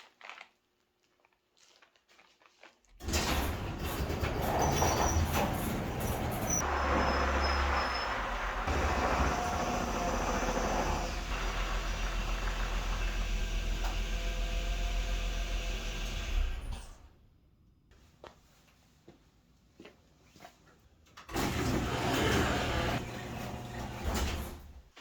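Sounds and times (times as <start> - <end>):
vehicle rumble and road noise: 3.0 - 15.4.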